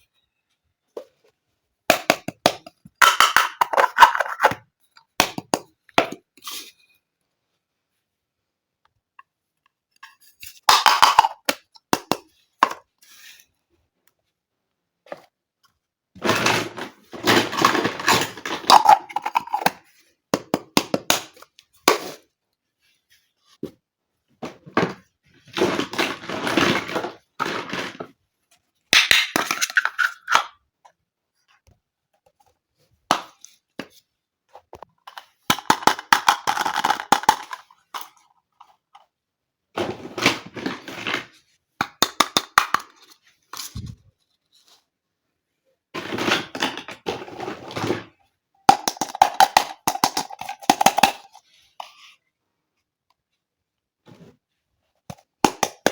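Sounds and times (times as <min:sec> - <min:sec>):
plastic toys clattering: 0:02.0 - 0:04.7, 0:16.2 - 0:19.9, 0:24.4 - 0:28.2, 0:28.9 - 0:30.6, 0:34.7 - 0:39.1, 0:39.8 - 0:44.0, 0:46.0 - 0:52.1.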